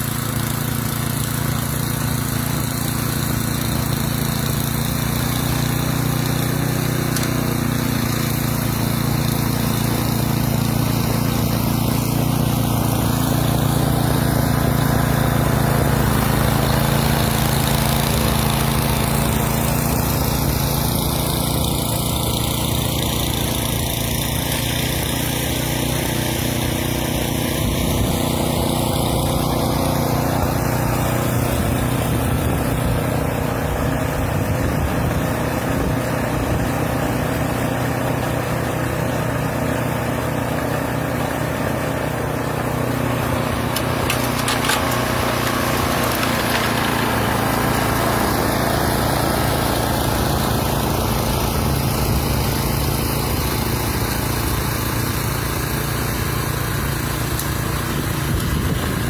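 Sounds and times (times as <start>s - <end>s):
snowblower engine running: 0.0s - 59.0s.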